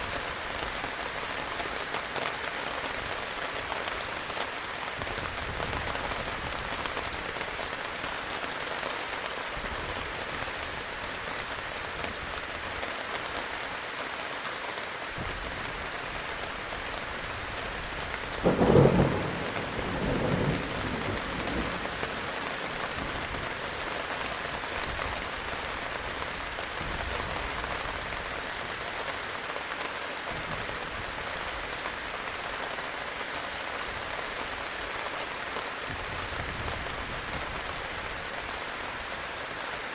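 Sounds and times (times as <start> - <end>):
heavy rain: 0.0 - 39.9
thunderclap: 18.4 - 23.6.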